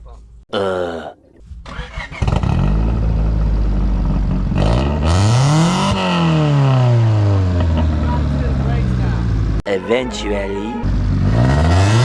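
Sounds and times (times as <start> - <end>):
car engine revving: 1.7 - 9.6, 10.8 - 12.0.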